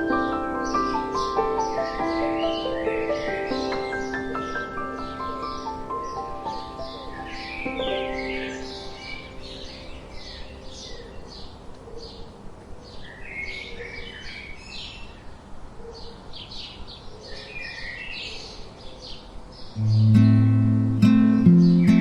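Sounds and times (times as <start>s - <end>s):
music notes: 0.0s - 10.7s, 19.8s - 22.0s
soft steady wind: 0.0s - 22.0s
songbirds chirping: 0.0s - 22.0s.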